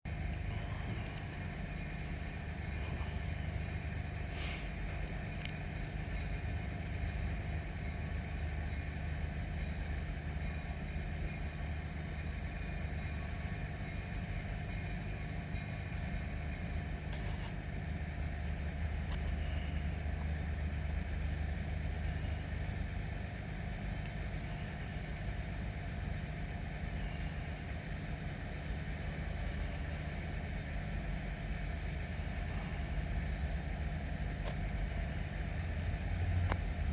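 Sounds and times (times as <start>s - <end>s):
engine idling with faint whine: 0.1s - 36.9s.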